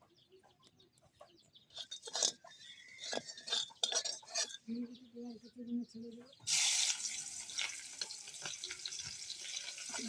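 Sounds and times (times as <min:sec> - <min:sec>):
metal utensils clattering on pan: 0:01.7 - 0:04.7, 0:07.4 - 0:10.0.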